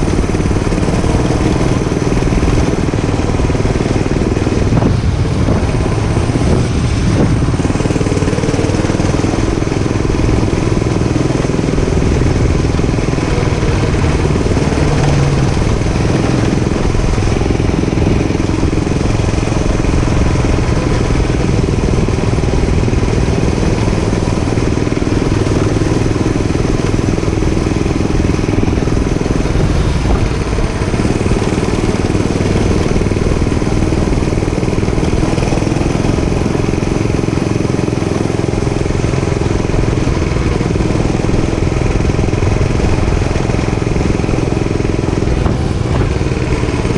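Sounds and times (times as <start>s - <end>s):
dirt bike engine running: 0.0s - 46.9s.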